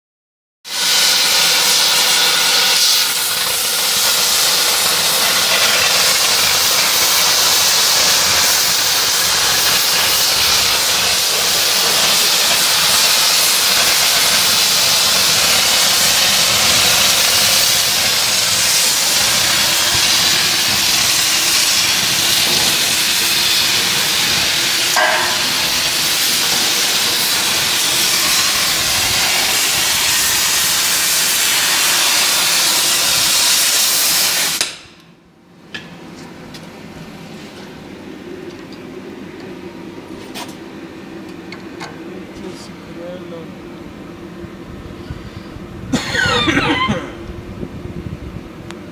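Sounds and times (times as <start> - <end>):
cnc machine hissing: 0.7 - 34.6.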